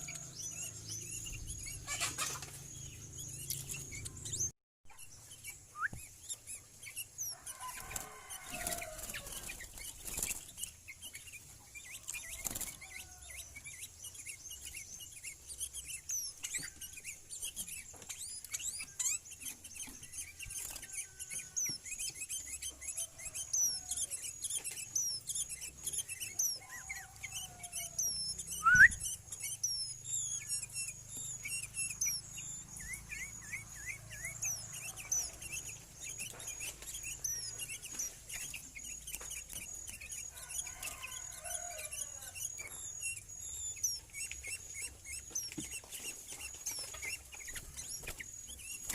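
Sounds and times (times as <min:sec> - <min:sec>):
birds chirping and calling: 0:00.0 - 0:48.9
lower whistled bird notes: 0:05.7 - 0:06.1, 0:26.6 - 0:29.7.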